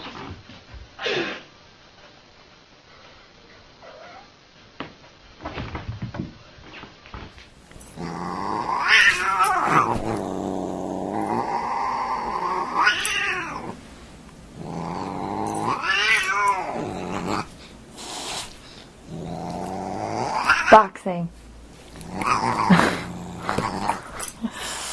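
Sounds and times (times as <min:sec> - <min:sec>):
cat yowling: 0:08.5 - 0:10.0, 0:11.5 - 0:13.8, 0:15.0 - 0:17.5.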